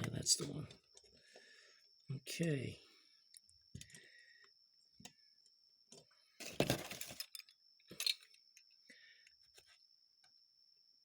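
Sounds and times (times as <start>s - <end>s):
small metal parts rattling: 6.4s - 8.4s.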